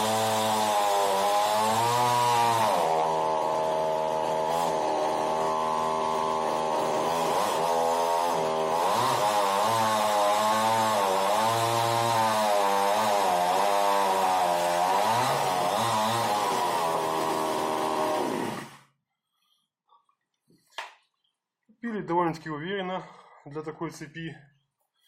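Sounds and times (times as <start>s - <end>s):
chainsaw running at high revs: 0.0s - 18.9s.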